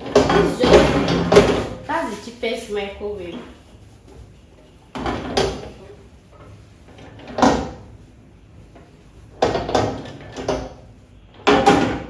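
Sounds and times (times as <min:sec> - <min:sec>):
knocks and bumps of microwave oven: 0:00.0 - 0:01.9, 0:07.2 - 0:07.9, 0:09.3 - 0:12.0.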